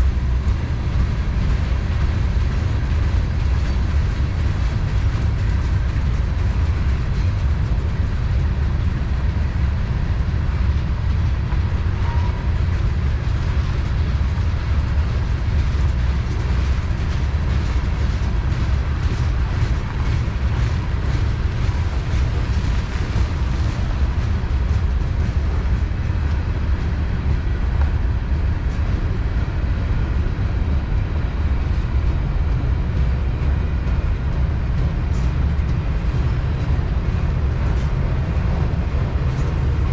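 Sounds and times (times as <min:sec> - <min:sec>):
freight train rolling past: 0:00.0 - 0:39.9
wheels clicking over rail joints: 0:00.1 - 0:29.8.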